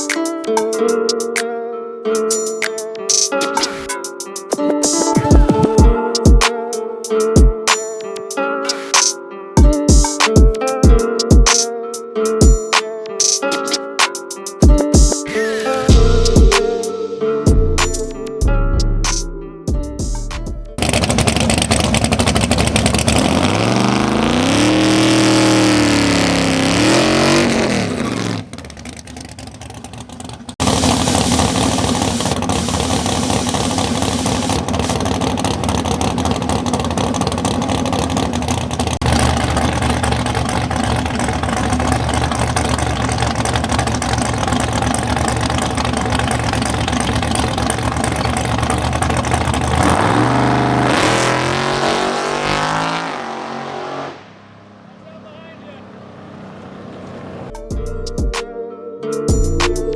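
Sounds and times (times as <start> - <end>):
race car engine revving: 20.8 - 55.0.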